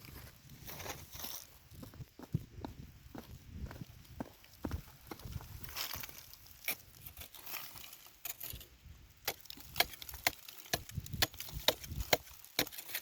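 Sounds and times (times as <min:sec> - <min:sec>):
dull low thuds: 0:01.7 - 0:05.7
dry wood snapping: 0:09.2 - 0:13.0.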